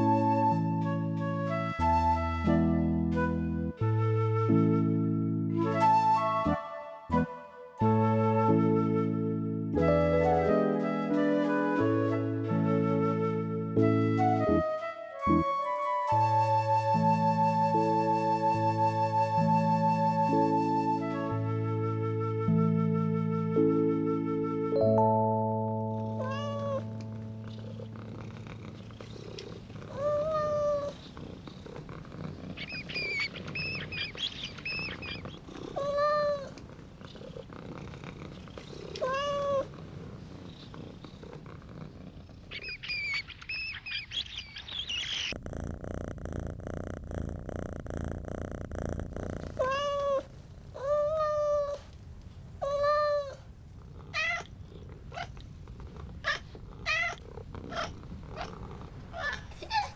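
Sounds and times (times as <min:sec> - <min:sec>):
cat purring: 0:26.0 - 0:59.9
cat meowing: 0:26.2 - 0:27.9, 0:29.0 - 0:31.8, 0:32.4 - 0:37.3, 0:38.5 - 0:40.1, 0:42.5 - 0:45.4, 0:49.4 - 0:51.9, 0:52.6 - 0:55.4, 0:56.1 - 0:59.9.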